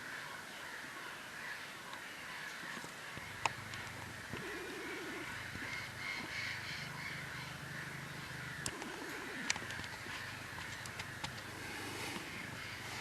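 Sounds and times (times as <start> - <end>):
harsh croaking bird calls: 0.0 - 13.0
outdoor background noise: 0.0 - 13.0
sharp clicks: 8.6 - 11.5.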